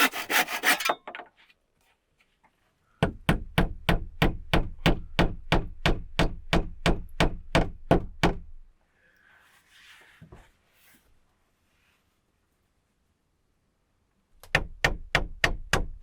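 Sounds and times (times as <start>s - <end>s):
faint rustling: 9.1s - 13.1s.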